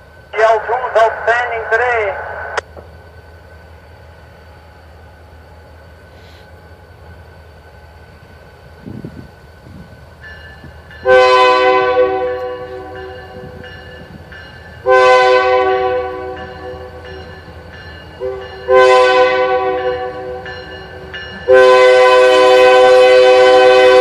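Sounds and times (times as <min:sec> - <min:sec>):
locomotive air horn blasts: 0:11.0 - 0:13.1, 0:14.8 - 0:17.0, 0:18.2 - 0:20.5, 0:21.5 - 0:24.0.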